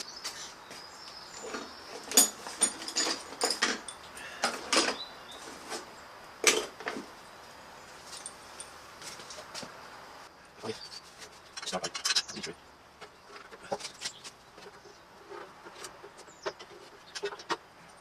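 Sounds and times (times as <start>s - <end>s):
metal parts and tools clinking: 1.3s - 5.8s, 8.1s - 9.4s, 10.9s - 12.5s.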